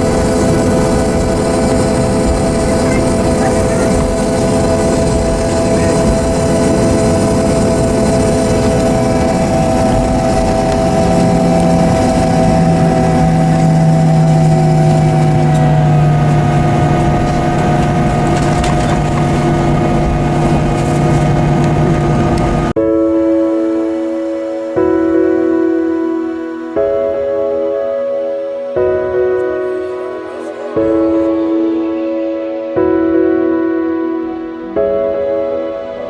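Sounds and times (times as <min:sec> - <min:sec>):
jet engines whining: 0:00.0 - 0:22.8
low hum: 0:00.0 - 0:22.8.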